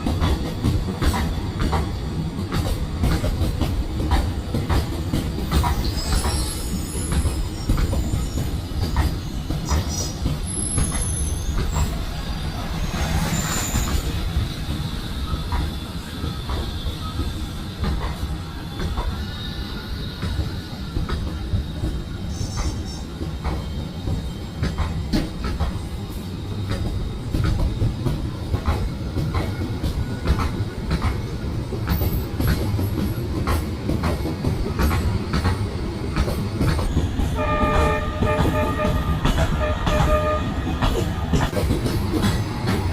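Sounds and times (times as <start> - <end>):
rail clicks: 0.0 - 42.9
train rumbling on rails: 0.0 - 42.9
high-pitched wheel squeals: 9.9 - 16.1.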